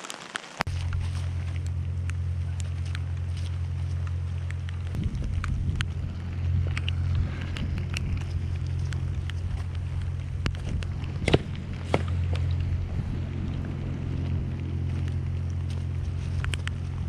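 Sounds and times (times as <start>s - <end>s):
wind buffeting microphone: 0.7s - 17.0s
light ticks: 15.0s - 17.0s.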